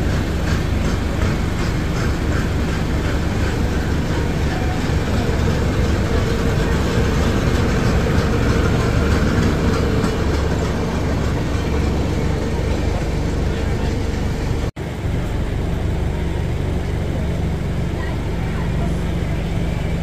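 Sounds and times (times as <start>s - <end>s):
clicking over rails: 0.0s - 15.5s
steady hum: 0.0s - 20.0s
train rumbling and rattling: 0.0s - 20.0s.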